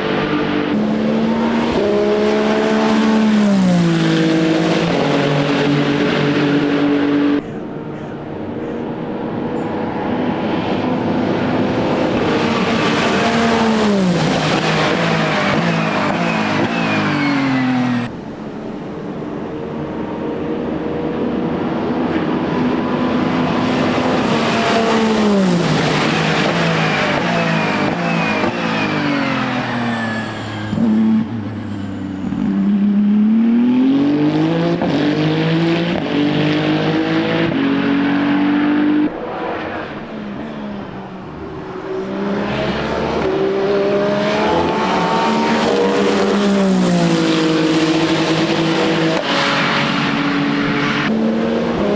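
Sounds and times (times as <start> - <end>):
race car engine downshifting: 0.0 - 51.9
race car engine upshifting: 0.0 - 51.9.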